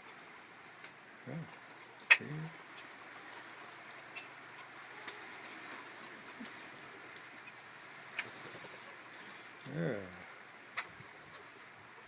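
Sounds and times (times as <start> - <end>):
faint steady hiss: 0.0 - 12.0
birds pecking with light taps: 1.8 - 9.8.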